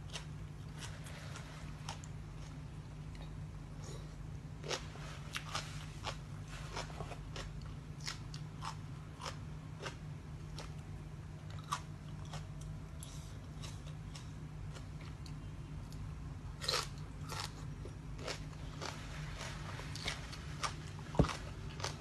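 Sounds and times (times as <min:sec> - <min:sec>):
crisp food crunching: 0:16.6 - 0:22.0.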